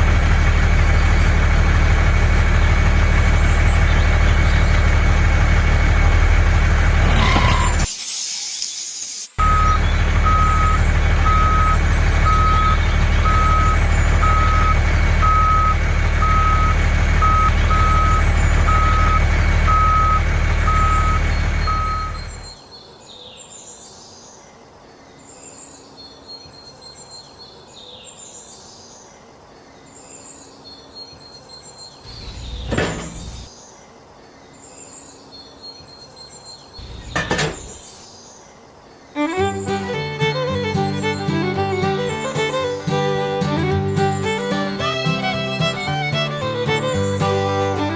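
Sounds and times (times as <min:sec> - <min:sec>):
truck engine running: 0:00.0 - 0:07.9, 0:09.4 - 0:22.5, 0:32.1 - 0:33.5, 0:39.2 - 0:47.9
reversing alarm beeping: 0:09.4 - 0:22.5.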